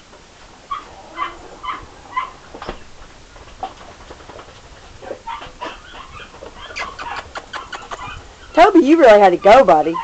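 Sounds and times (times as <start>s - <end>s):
dogs whimpering and yipping: 0.7s - 2.5s, 5.0s - 10.0s.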